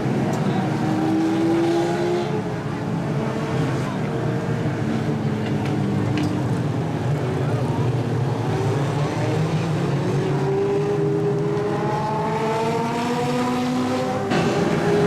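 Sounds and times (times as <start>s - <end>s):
race car engine accelerating: 8.2s - 15.0s.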